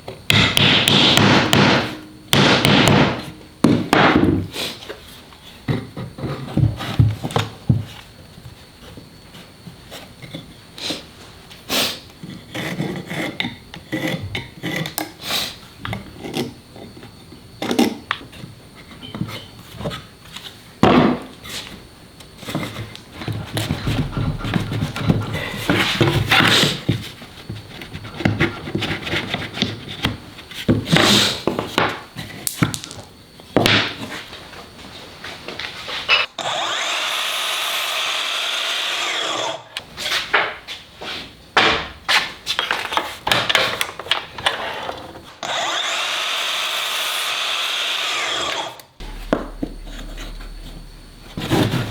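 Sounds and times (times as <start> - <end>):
wood and tools knocking on workbench: 23.2 - 27.1.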